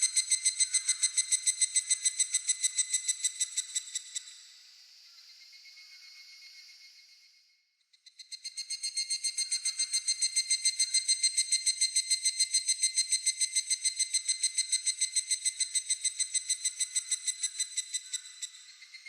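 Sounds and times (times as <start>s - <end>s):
cicada ringing trill: 0.0s - 4.3s, 8.2s - 18.6s.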